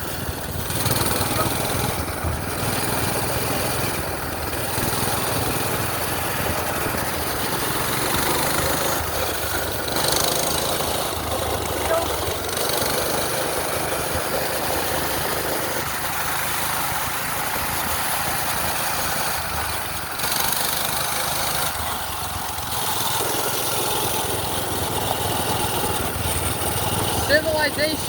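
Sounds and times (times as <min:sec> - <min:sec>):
wind noise: 0:00.0 - 0:12.5
small engine running: 0:00.0 - 0:28.0.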